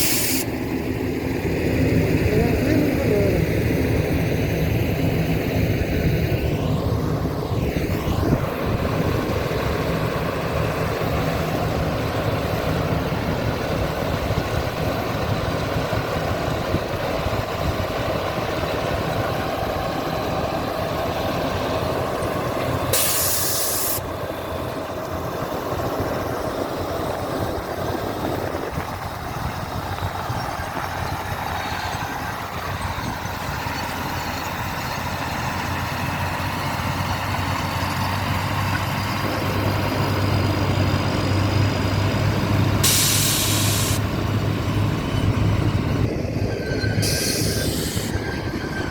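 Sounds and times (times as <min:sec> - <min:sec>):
air release hiss: 0:00.0 - 0:00.5, 0:22.9 - 0:24.0, 0:42.8 - 0:44.0, 0:47.0 - 0:48.2
diesel engine running: 0:00.0 - 0:48.9.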